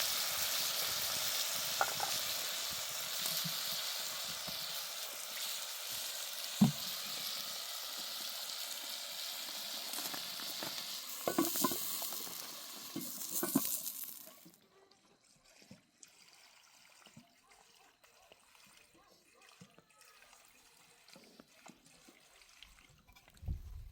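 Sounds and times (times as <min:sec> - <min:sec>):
food sizzling in a pan: 0:00.0 - 0:14.6
utensil knocking while stirring: 0:06.6 - 0:06.9, 0:11.2 - 0:12.0.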